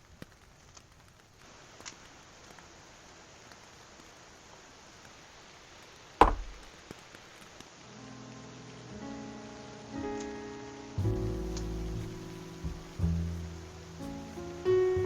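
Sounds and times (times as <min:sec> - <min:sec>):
rain hissing: 0:00.0 - 0:15.0
loud knock with low thud: 0:06.2 - 0:06.6, 0:11.0 - 0:13.3.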